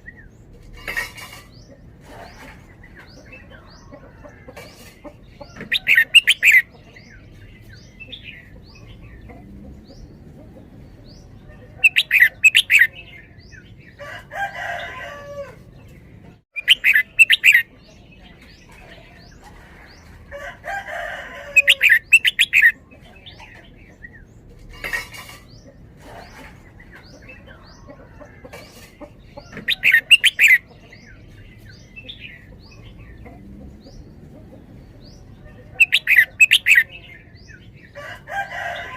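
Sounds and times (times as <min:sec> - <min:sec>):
soft low bird calls and chirps: 0:00.0 - 0:38.9
bulbul singing rapid phrases: 0:01.7 - 0:14.0, 0:15.8 - 0:20.2, 0:21.5 - 0:24.5, 0:29.0 - 0:38.0.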